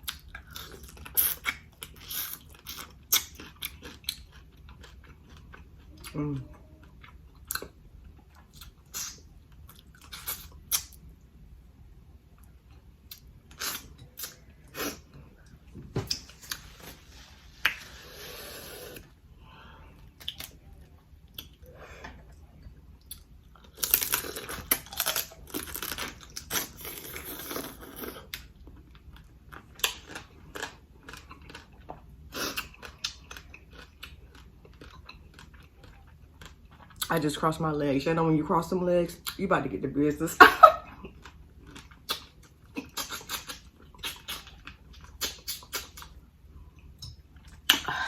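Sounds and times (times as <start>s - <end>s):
wet chewing and smacking: 0.0s - 11.2s, 22.4s - 37.1s, 41.0s - 47.9s.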